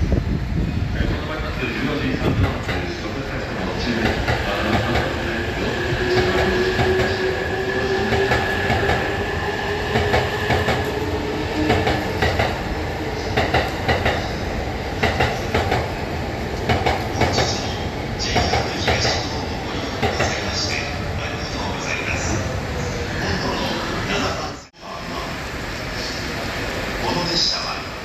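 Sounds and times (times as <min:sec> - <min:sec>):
train wheels clicking on rail joints: 0:13.3 - 0:14.3, 0:15.0 - 0:15.9, 0:16.6 - 0:19.3.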